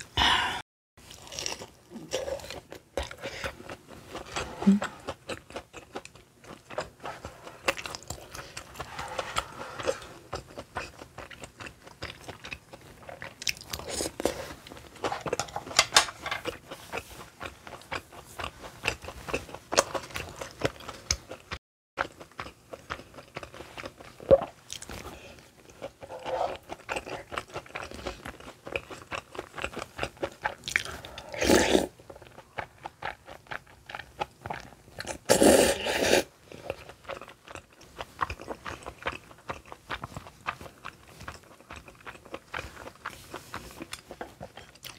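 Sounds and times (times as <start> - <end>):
wet chewing mouth sounds: 16.4 - 44.9.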